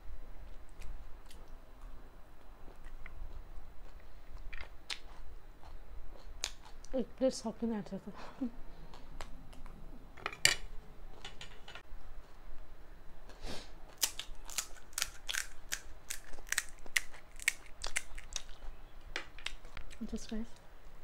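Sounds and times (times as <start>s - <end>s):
crunchy snack chewing: 13.9s - 18.8s.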